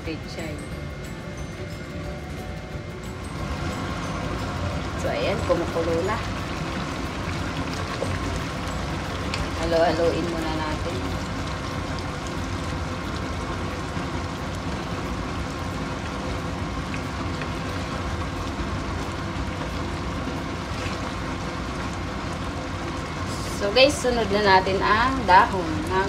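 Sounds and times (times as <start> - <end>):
broth boiling in a pan: 0.0 - 26.0.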